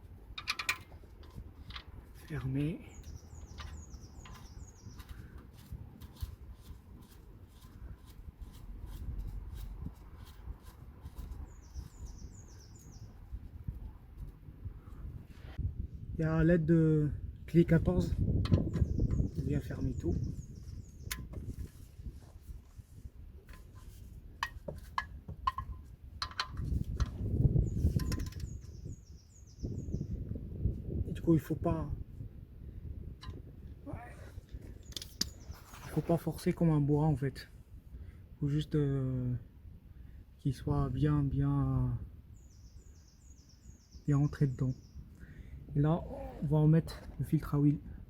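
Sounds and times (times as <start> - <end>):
wrench clicking on metal: 0.3 - 1.9
small bird chirping: 2.2 - 5.8, 10.2 - 15.0, 18.6 - 21.8, 27.2 - 30.2, 34.6 - 36.2, 42.4 - 45.2
faint clicks and metallic taps: 23.5 - 27.2.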